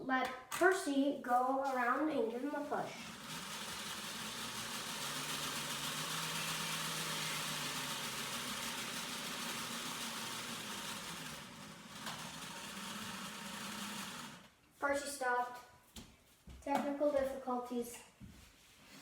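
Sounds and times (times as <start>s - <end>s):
model train motor whirring: 3.0s - 14.5s.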